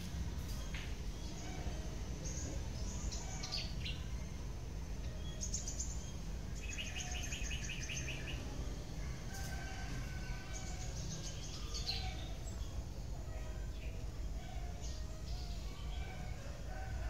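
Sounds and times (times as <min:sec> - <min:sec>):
small birds chirping: 0:00.0 - 0:16.6.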